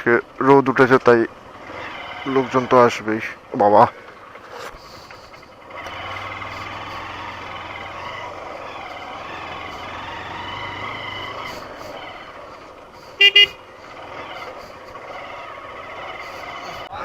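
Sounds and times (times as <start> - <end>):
motorcycle engine and road noise: 0.0 - 17.0
horn beeps: 13.2 - 13.6.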